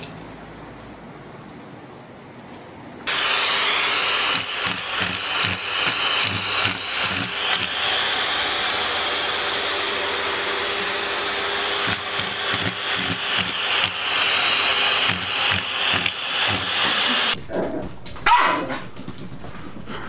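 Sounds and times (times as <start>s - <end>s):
small electric motor whirring: 3.1s - 17.4s.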